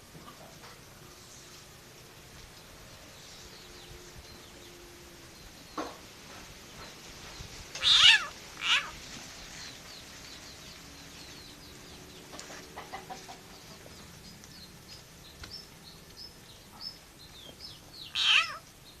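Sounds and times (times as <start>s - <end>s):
frog screaming: 7.8s - 9.0s, 18.2s - 18.6s.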